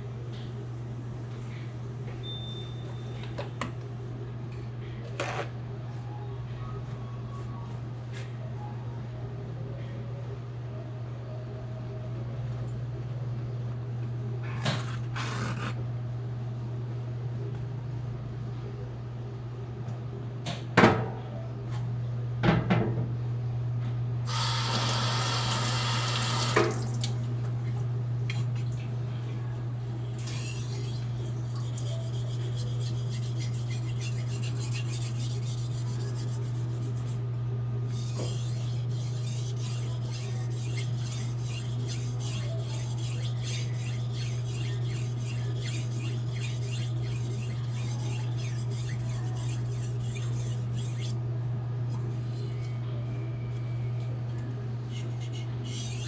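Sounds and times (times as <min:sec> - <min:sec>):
tap running water: 0:25.5 - 0:27.6
knife sharpening on whetstone: 0:30.3 - 0:36.9, 0:37.9 - 0:51.2, 0:54.9 - 0:56.0.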